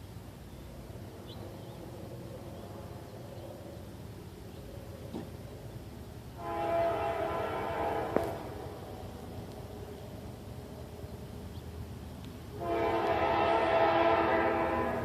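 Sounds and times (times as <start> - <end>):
train rumbling on rails: 0.0 - 15.0
locomotive air horn: 6.4 - 8.6, 12.6 - 15.0.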